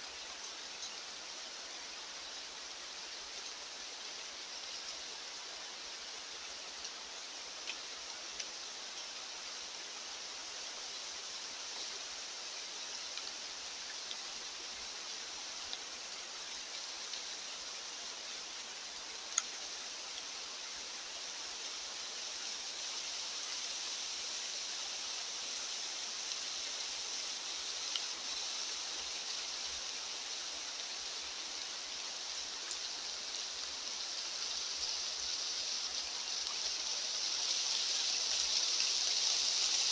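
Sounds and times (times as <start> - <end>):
outdoor ambient hiss: 0.0 - 39.9
faint ticks: 0.3 - 1.0, 6.7 - 9.2, 12.8 - 17.6, 18.5 - 20.4, 25.3 - 39.9.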